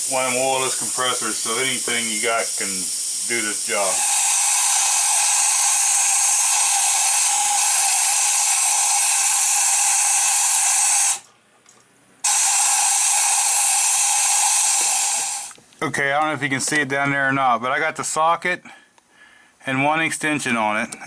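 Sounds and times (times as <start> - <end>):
compressed air hissing: 0.0 - 11.3, 12.2 - 15.6.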